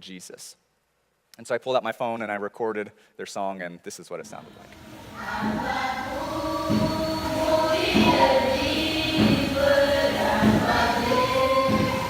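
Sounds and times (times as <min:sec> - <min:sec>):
girls singing worship song: 0:04.3 - 0:12.0.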